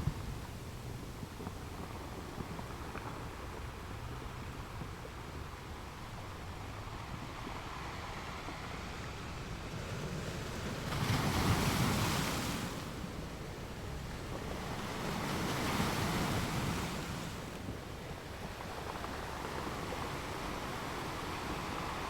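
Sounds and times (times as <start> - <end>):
ocean waves breaking: 7.6 - 22.0.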